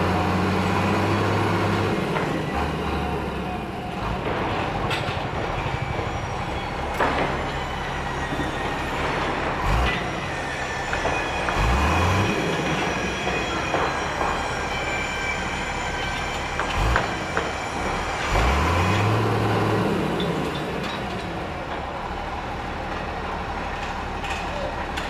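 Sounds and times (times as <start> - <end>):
heavy machinery engine rumbling: 0.0 - 25.0
sharp metallic clanks: 4.0 - 21.9.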